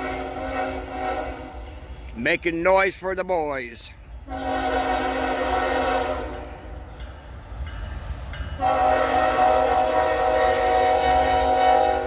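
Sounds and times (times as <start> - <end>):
locomotive air horn blasts: 0.0 - 1.6, 4.3 - 6.6, 8.6 - 12.0
low train rumble: 0.0 - 12.0.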